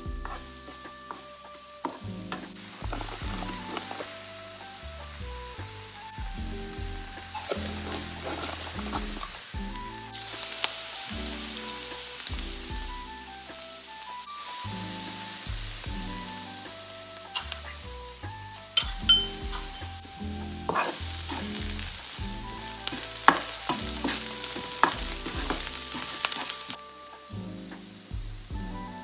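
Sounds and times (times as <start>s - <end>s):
onions sizzling in butter: 0.2s - 29.0s
spoon scraping a pan: 1.8s - 4.3s, 7.3s - 9.4s, 18.8s - 26.8s
spoon clinking on ceramic bowl: 18.8s - 19.7s.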